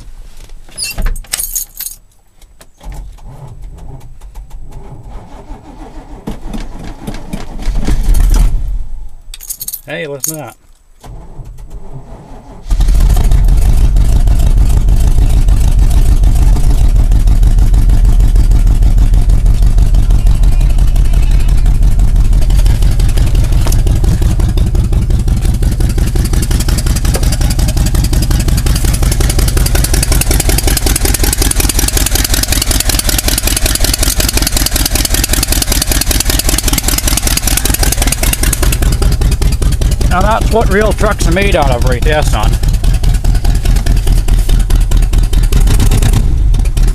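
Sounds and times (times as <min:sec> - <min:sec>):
engine running loud: 0:12.5 - 0:46.9.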